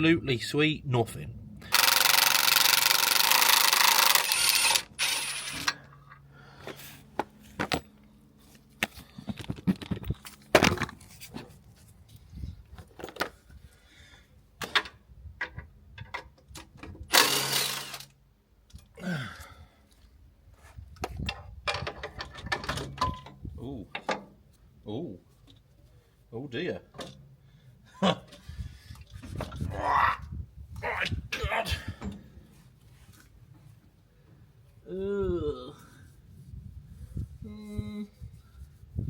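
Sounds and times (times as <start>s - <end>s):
impact wrench bursts: 1.7s - 5.8s, 17.1s - 18.1s
clinks and knocks of tools: 7.6s - 8.0s, 12.8s - 13.4s, 21.0s - 24.3s.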